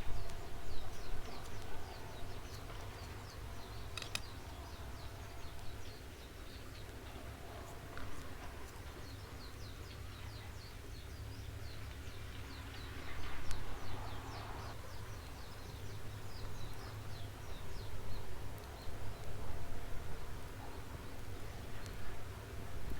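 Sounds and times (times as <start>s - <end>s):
sharp click: 3.9s - 4.3s.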